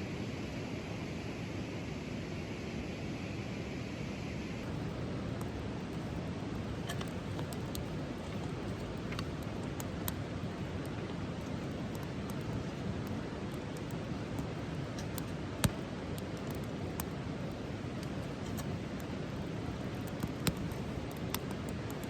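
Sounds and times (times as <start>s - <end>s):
campfire crackling and popping: 4.6s - 22.0s.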